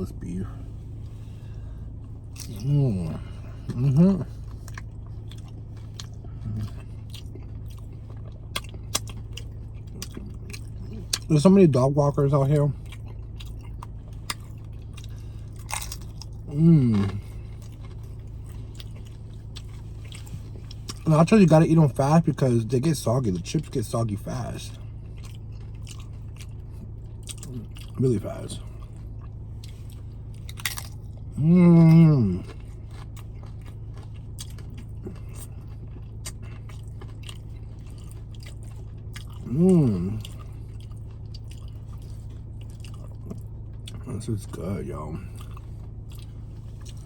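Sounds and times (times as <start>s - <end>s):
low hum: 0.0s - 47.0s
crunchy chips chewing: 12.2s - 21.2s, 23.4s - 47.0s.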